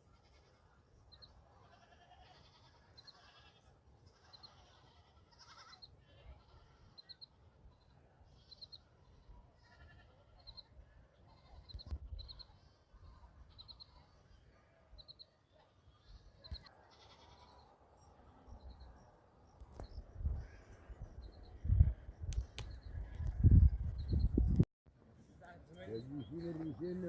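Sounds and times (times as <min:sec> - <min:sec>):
goats and sheep bleating: 0:00.1 - 0:00.7, 0:01.6 - 0:07.2, 0:08.3 - 0:10.5, 0:15.6 - 0:17.7.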